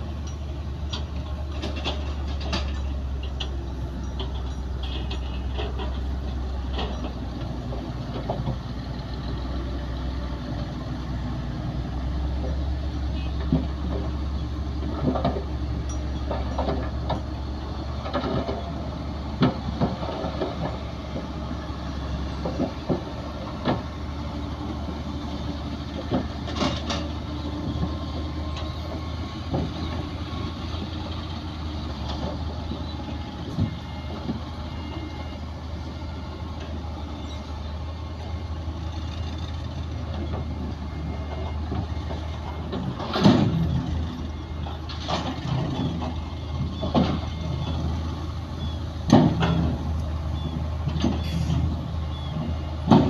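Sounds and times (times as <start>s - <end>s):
diesel machinery engine drone: 0.0s - 53.0s
metal clanks and knocks: 0.2s - 8.7s, 12.4s - 21.4s, 25.6s - 30.9s, 40.0s - 47.8s, 49.0s - 50.0s, 52.8s - 53.0s.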